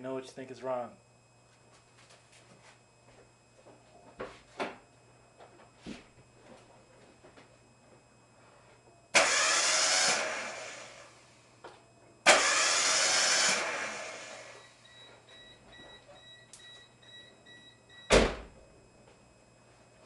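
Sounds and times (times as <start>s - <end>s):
car engine cranking without starting: 9.2s - 11.0s, 12.3s - 14.6s
faint on-off beeping: 13.8s - 18.2s
thump: 18.1s - 18.5s.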